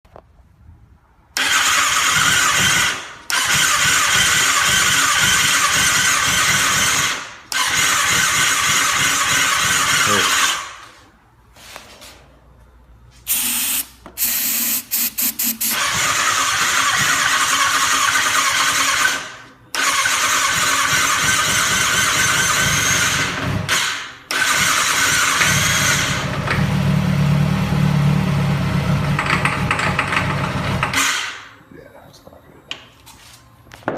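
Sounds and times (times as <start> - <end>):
motorcycle electric starter whirring: 1.4 - 10.9, 13.3 - 27.7.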